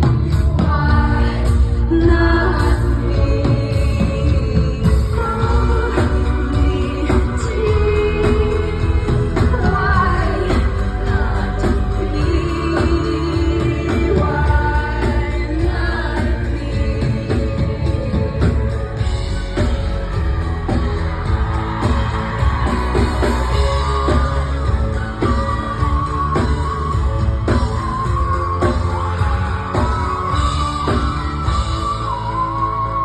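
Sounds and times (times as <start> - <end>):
heavy bass: 0.0 - 33.0
live rock band: 0.0 - 33.0
person singing: 0.0 - 33.0
drum beat: 17.0 - 32.3.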